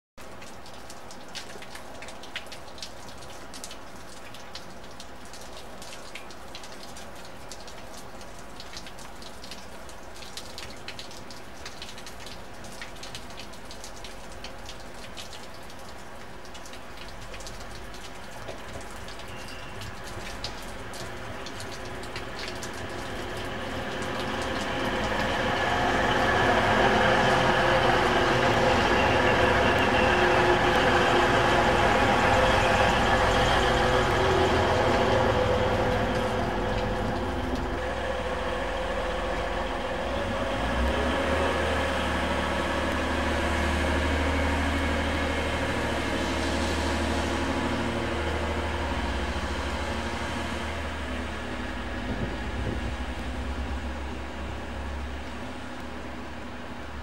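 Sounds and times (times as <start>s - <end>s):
diesel train passing: 18.6s - 57.0s.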